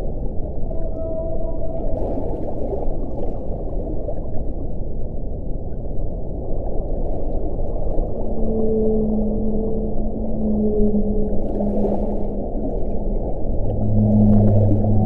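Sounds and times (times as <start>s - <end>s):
wind blowing: 8.0s - 15.0s.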